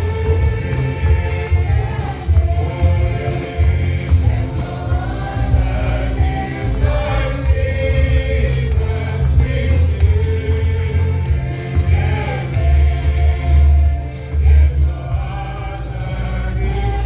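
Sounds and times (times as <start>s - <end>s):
gospel choir and congregation singing: 0.0s - 17.0s
heavy bass accompaniment: 0.0s - 17.0s.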